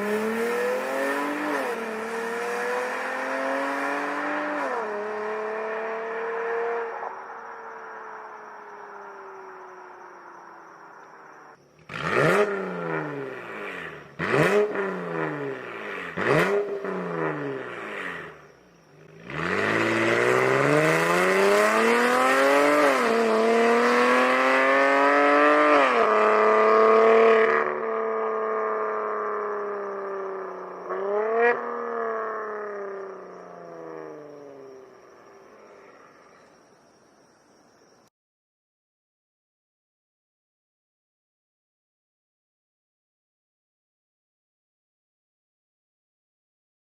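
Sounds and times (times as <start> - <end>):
car engine revving: 0.0 - 8.6, 11.8 - 36.1.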